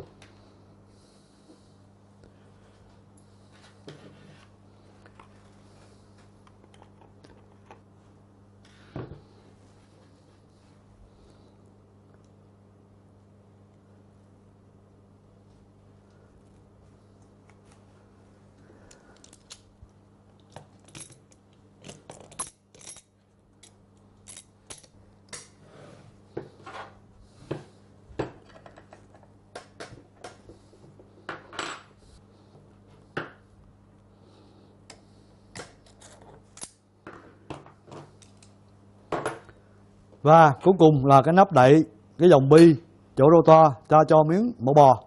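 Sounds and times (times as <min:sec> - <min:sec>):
faint low hum: 0:00.0 - 0:45.0
metal parts and tools clinking: 0:20.8 - 0:25.0.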